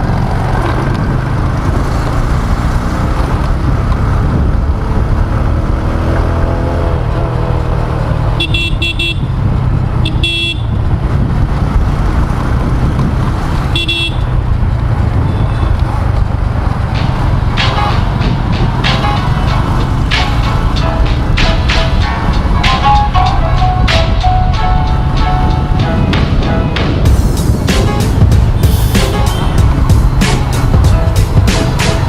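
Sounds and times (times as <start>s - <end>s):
motorcycle engine: 0.0s - 32.0s
road noise: 0.0s - 32.0s
car horns honking: 8.4s - 9.3s, 10.0s - 10.8s, 13.6s - 14.4s, 27.7s - 29.8s.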